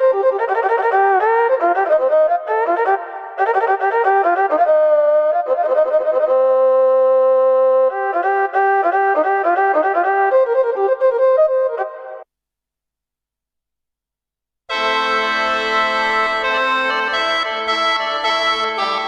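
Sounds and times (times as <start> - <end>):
keyboard playing a quick melody: 14.7 - 19.0.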